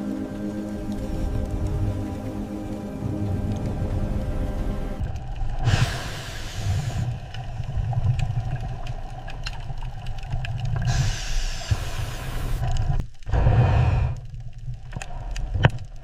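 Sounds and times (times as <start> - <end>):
engine low rumble: 0.0 - 5.4
hissing noise: 0.0 - 7.6, 10.8 - 14.2.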